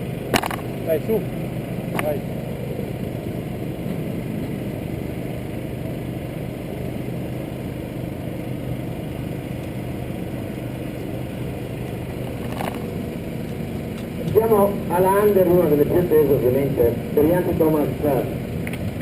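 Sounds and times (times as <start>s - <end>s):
motorbike engines idling: 0.0s - 19.0s.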